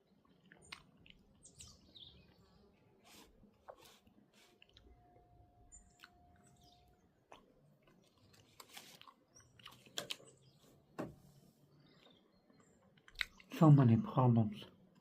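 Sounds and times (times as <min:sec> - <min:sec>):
faint clicks and crunching: 0:00.0 - 0:10.6, 0:11.8 - 0:13.6
faint steady tone: 0:04.0 - 0:07.8.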